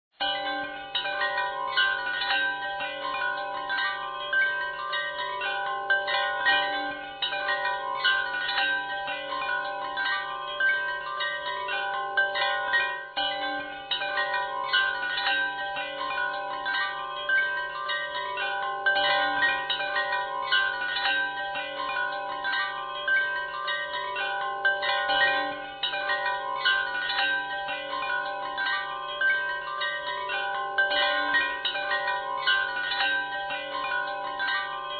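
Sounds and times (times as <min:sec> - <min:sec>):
wind chimes ringing: 0:00.1 - 0:34.9.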